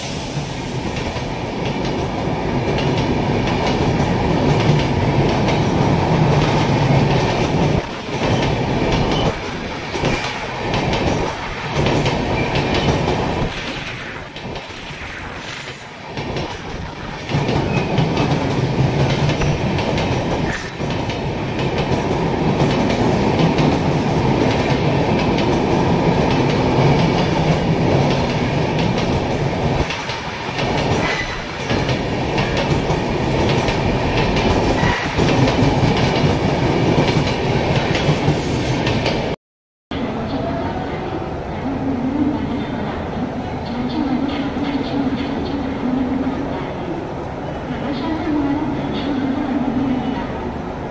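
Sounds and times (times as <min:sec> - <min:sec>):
train wheels rumbling on rails: 0:00.0 - 0:39.4.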